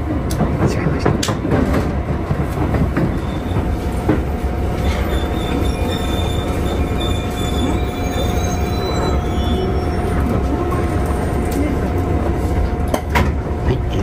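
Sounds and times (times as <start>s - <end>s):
train running noise: 0.0s - 14.0s
brake squeal: 4.8s - 10.3s.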